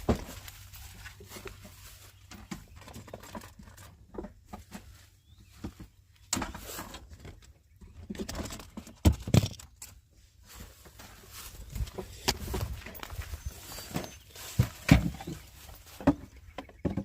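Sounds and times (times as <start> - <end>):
handling knocks and taps: 11.7 - 17.0.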